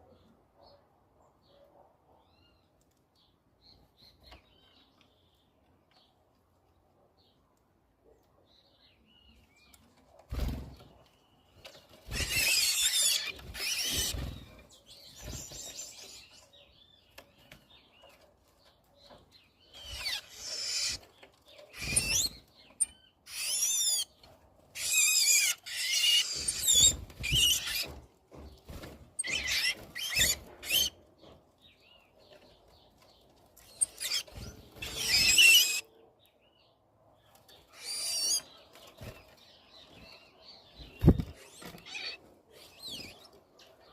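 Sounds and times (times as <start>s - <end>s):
birds calling harshly: 10.3s - 18.1s, 19.0s - 32.1s, 33.6s - 36.0s, 37.5s - 43.9s.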